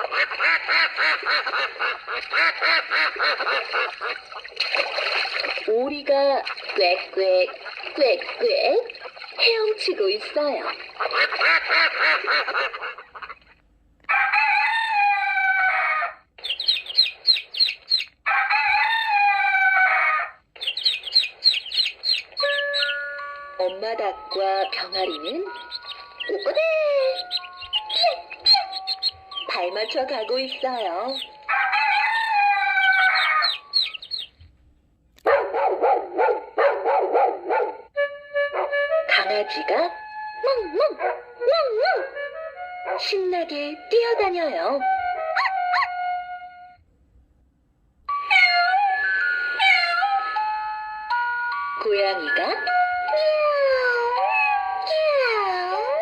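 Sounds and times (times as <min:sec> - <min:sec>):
recorded duck sound: 0:00.0 - 0:05.6, 0:06.4 - 0:18.8, 0:19.4 - 0:23.0, 0:23.6 - 0:34.4
recorded rooster crowing: 0:14.1 - 0:16.2, 0:18.2 - 0:20.4, 0:31.4 - 0:33.8
chicks peeping: 0:15.7 - 0:34.4
dog barking: 0:35.2 - 0:37.9, 0:38.6 - 0:39.4, 0:45.4 - 0:46.0.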